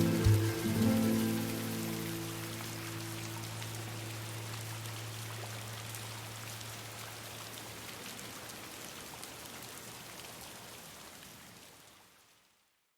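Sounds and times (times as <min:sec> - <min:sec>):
rain pattering: 0:00.0 - 0:12.3.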